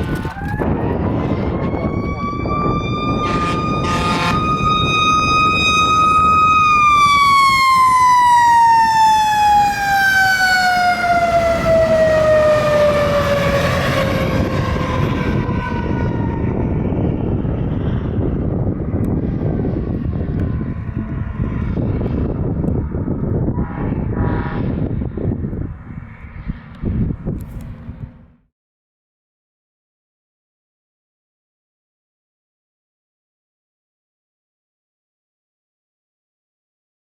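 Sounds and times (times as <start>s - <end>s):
fire truck siren winding down: 0.0s - 25.4s
truck engine and tyres rumbling: 0.0s - 28.5s.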